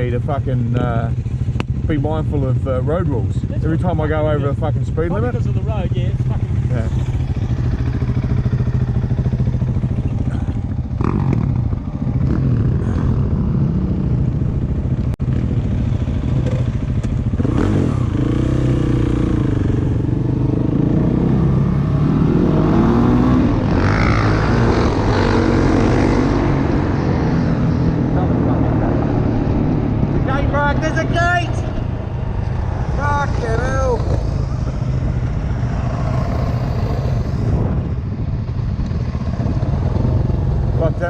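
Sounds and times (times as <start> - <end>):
dirt bike engine running: 5.0 - 21.7.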